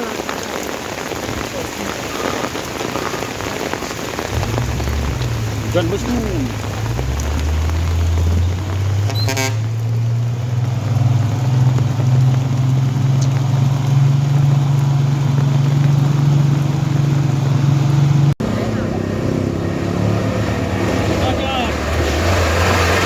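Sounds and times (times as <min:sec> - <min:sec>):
heavy vehicle engine running: 0:04.2 - 0:23.0
vehicle horn toot: 0:09.0 - 0:09.7.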